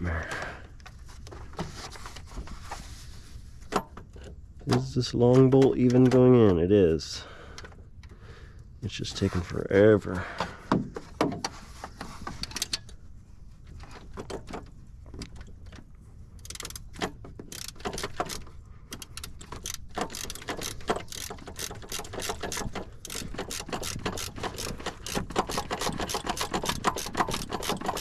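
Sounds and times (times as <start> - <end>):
hand ratchet clicking: 16.4 - 28.0.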